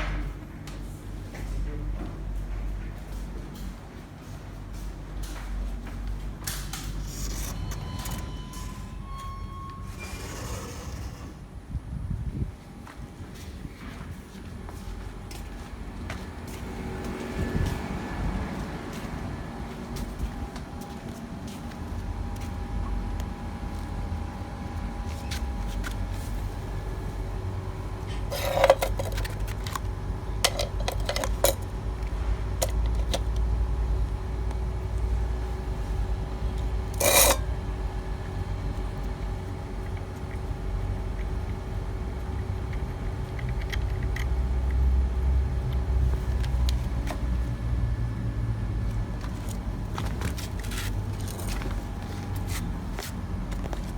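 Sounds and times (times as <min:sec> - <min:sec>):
low mechanical hum: 0:00.0 - 0:53.9
metallic clinks and scrapes: 0:28.1 - 0:29.8, 0:30.4 - 0:31.6, 0:37.0 - 0:37.5.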